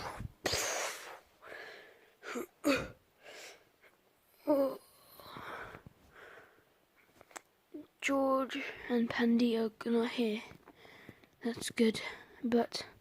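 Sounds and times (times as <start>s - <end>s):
person breathing and huffing: 0.0s - 3.9s, 5.1s - 6.7s.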